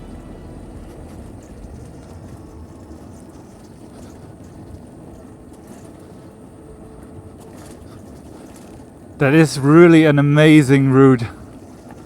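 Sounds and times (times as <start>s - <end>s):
faint high whine: 0.0s - 7.2s
wind rumble on microphone: 0.0s - 9.2s.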